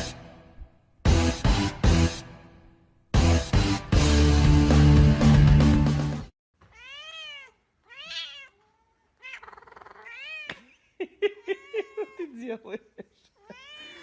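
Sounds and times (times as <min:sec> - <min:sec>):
loud music: 0:01.1 - 0:02.5, 0:03.2 - 0:06.3
cat meowing: 0:06.6 - 0:10.5, 0:13.4 - 0:14.0.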